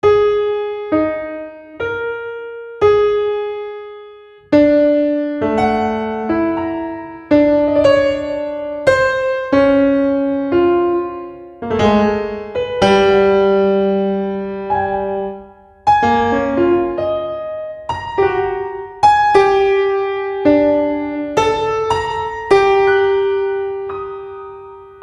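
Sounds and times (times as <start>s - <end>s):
slow solo piano: 0.0s - 25.0s.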